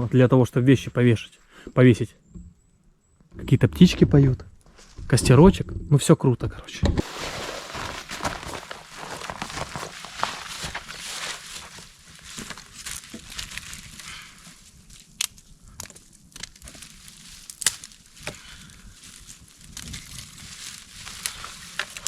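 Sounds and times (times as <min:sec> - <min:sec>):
campfire crackling: 0:07.0 - 0:22.0.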